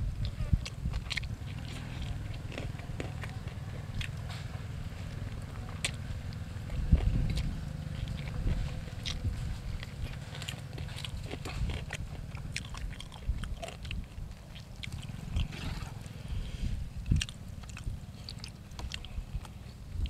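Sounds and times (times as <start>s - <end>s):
close chewing with wet clicks: 0.2s - 16.2s, 17.0s - 20.0s
food crunching: 0.2s - 16.2s, 17.0s - 20.0s
lip smacks: 0.2s - 16.2s.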